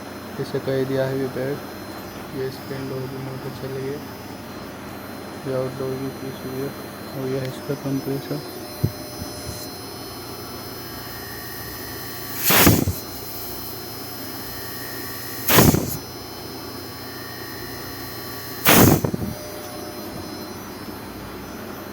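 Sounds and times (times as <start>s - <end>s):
air conditioner fan motor hum: 0.0s - 21.9s
loud harsh bursts: 10.4s - 21.0s.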